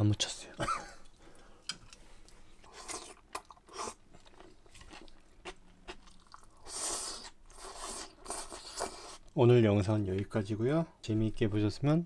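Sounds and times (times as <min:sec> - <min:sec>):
person chewing and crunching food: 0:01.0 - 0:09.3.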